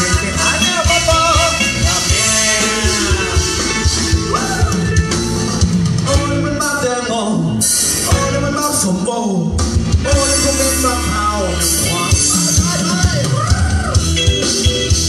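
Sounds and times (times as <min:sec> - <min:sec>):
person singing: 0:00.0 - 0:07.1
bass: 0:00.0 - 0:15.0
drum kit: 0:00.0 - 0:15.0.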